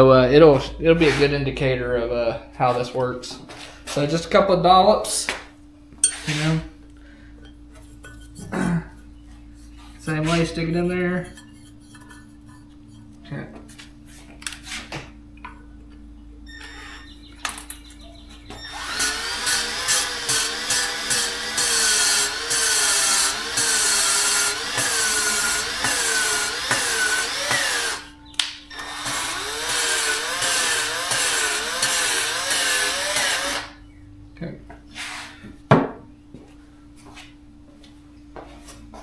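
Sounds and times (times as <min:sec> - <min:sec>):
drill spinning: 0:18.5 - 0:28.1, 0:28.7 - 0:33.8
valve grinding against seat: 0:18.5 - 0:28.1, 0:28.7 - 0:33.8.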